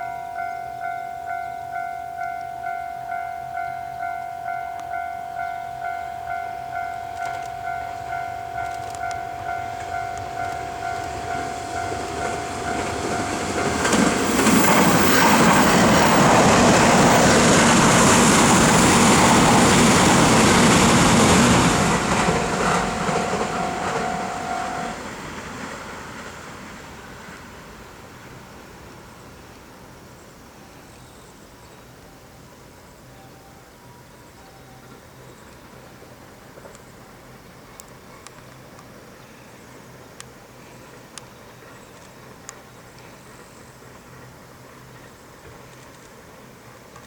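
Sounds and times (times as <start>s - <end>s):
level crossing bell clanging: 0.0s - 17.4s, 18.0s - 25.0s
train passing with rumble: 0.0s - 47.0s.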